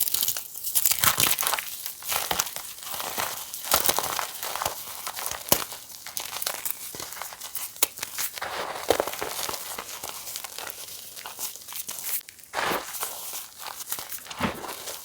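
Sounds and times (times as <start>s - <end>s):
chalk crunching and crackling: 2.3s - 15.0s.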